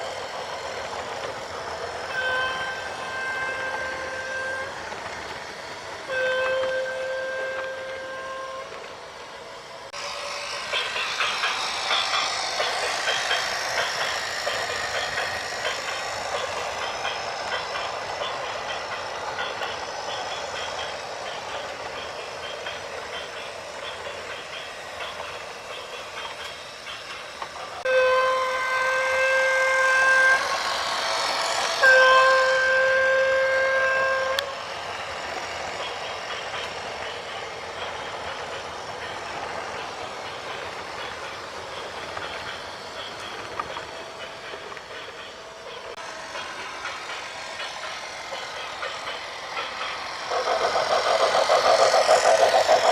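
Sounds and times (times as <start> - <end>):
train rumble and clatter: 0.0 - 52.9
train horn blasts: 2.0 - 4.9, 6.1 - 8.8, 27.9 - 30.9, 31.8 - 34.6.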